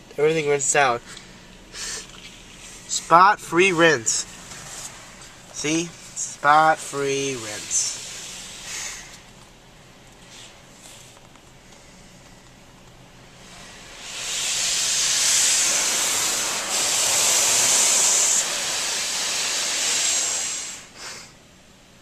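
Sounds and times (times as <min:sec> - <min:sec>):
water jets spraying on car: 0:01.7 - 0:12.0, 0:13.2 - 0:21.3.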